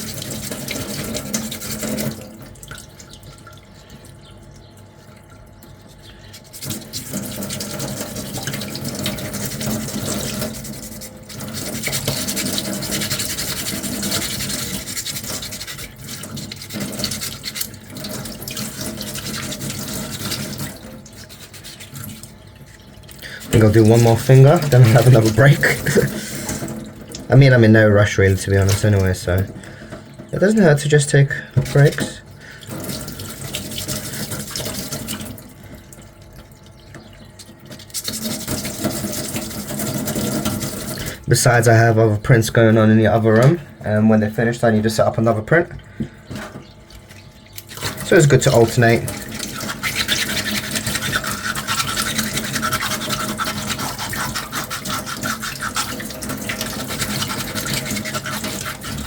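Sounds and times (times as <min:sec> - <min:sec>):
sandpaper scrubbing: 0:09.1 - 0:17.8, 0:18.6 - 0:22.4, 0:48.2 - 0:59.0.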